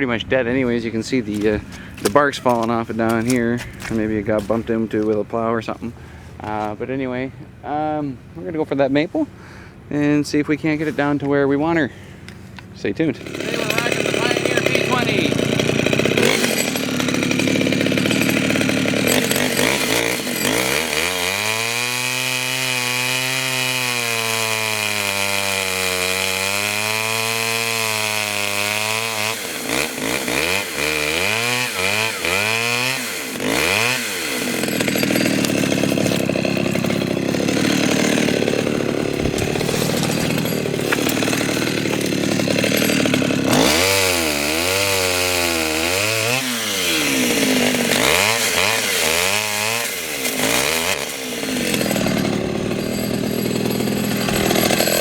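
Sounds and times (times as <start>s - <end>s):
chainsaw revving and cutting: 0.6s - 5.1s, 12.6s - 55.0s.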